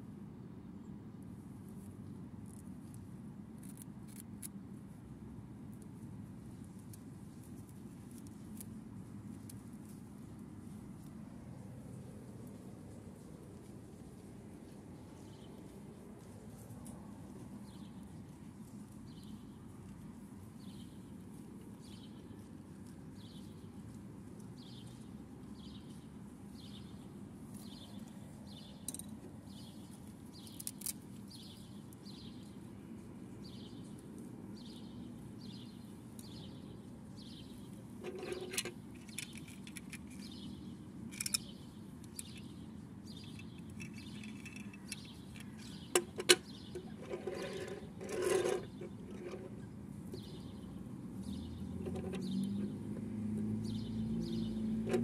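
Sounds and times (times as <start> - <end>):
bird chirping: 34.6 - 47.9, 48.6 - 52.8, 53.6 - 54.8
toy rubbing scrape: 38.0 - 39.2, 46.8 - 49.6
plastic toy parts clicking on wood: 38.1 - 40.4, 41.1 - 41.5, 43.1 - 46.4.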